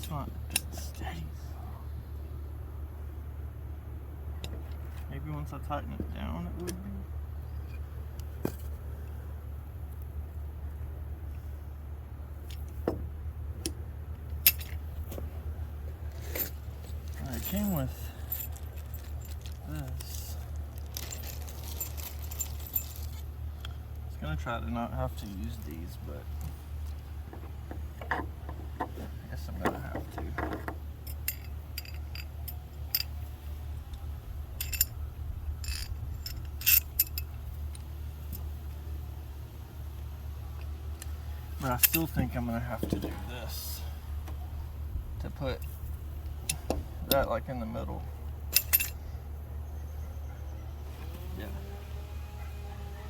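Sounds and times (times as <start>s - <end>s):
steady low hum: 0.0s - 53.0s
small hardware clicking and clinking: 13.6s - 14.8s, 29.6s - 33.2s, 34.6s - 38.5s, 48.5s - 49.0s.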